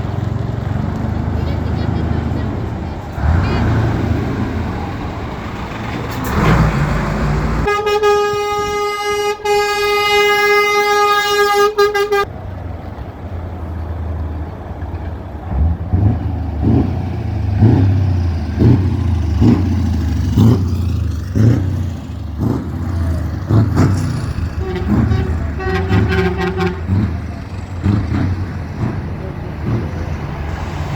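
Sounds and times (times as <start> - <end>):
truck engine rumbling: 0.0 - 30.9
truck horn blast: 7.6 - 12.3, 22.8 - 28.4.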